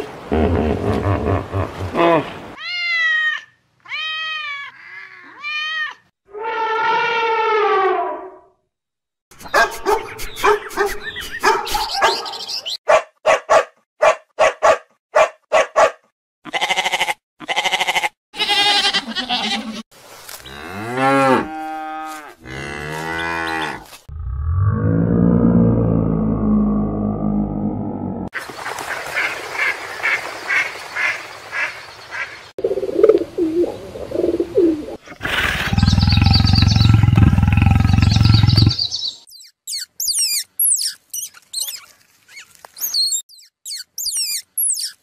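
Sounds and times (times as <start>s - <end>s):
cat meowing: 2.6s - 6.0s
dog barking: 9.4s - 16.1s
cattle mooing: 20.5s - 24.0s.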